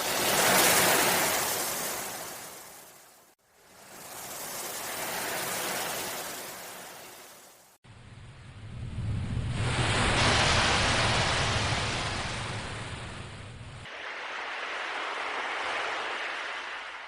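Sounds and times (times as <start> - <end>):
ocean waves breaking: 0.0 - 3.0, 9.1 - 17.0
low rumble: 7.9 - 17.0.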